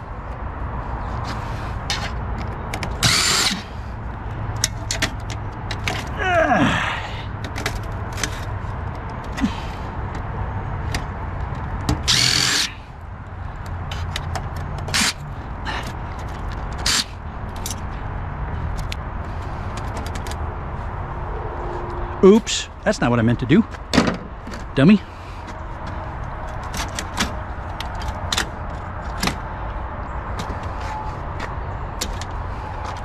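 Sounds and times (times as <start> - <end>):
handling clicks and clatter: 1.2 - 3.7, 4.5 - 6.2, 7.4 - 9.4, 13.6 - 18.0, 19.7 - 20.4, 25.5 - 29.5, 30.4 - 33.0
cordless drill-driver running: 3.0 - 3.7, 12.1 - 12.7.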